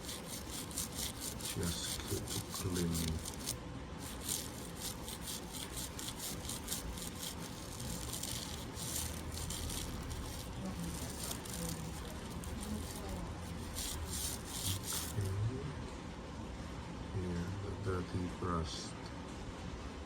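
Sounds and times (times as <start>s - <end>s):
brush scratching inside ear: 0.0s - 15.3s.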